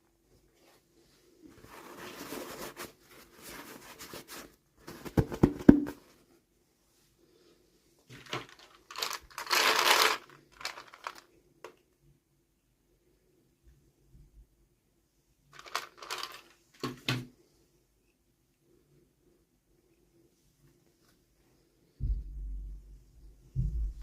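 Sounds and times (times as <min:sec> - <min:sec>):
packaging rustling and crinkling: 0:08.1 - 0:11.3, 0:15.5 - 0:17.0
packaging tearing: 0:08.4 - 0:11.2, 0:15.6 - 0:16.5.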